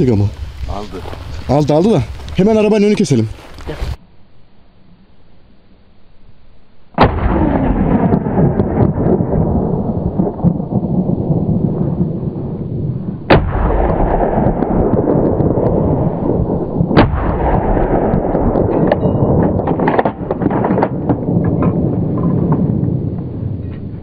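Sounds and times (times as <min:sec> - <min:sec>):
continuous rumbling noise: 0:00.0 - 0:24.0
gunshots: 0:07.0 - 0:09.4, 0:13.2 - 0:22.8.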